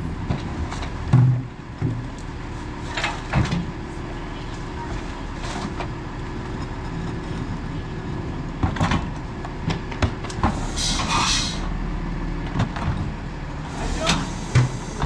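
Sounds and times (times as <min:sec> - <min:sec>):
garbage truck engine running: 0:00.0 - 0:15.0
hiss of air: 0:10.5 - 0:11.7.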